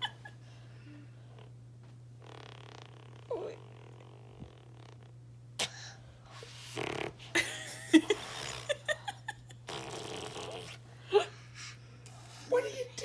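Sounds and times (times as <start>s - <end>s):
baby blowing raspberries: 5.6s - 7.1s, 9.7s - 10.8s.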